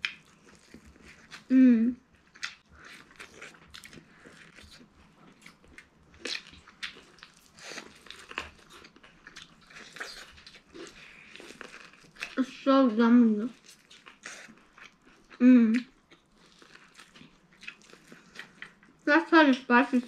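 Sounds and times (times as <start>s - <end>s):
people biting and chewing corn: 0.0s - 1.6s, 2.3s - 12.5s, 13.5s - 19.1s.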